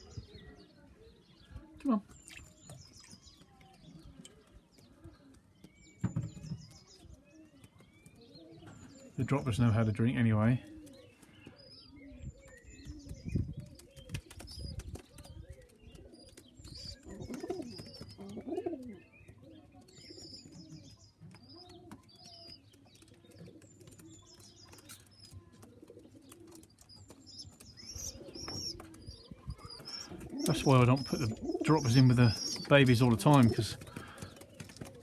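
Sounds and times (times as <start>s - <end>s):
pigeons cooing: 0.0s - 35.0s
high thin peeping calls: 25.8s - 34.6s.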